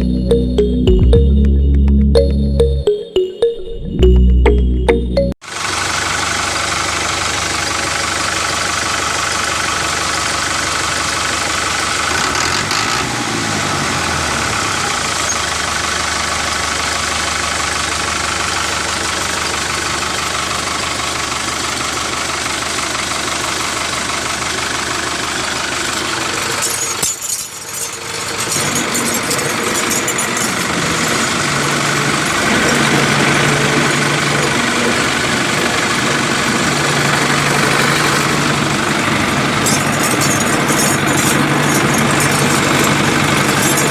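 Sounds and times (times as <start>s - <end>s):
small tractor motor running: 5.5s - 26.9s, 27.7s - 43.9s.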